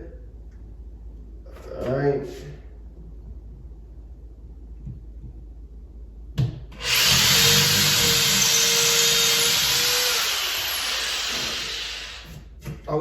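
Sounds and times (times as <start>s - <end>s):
power drill boring into wall: 6.8s - 12.4s.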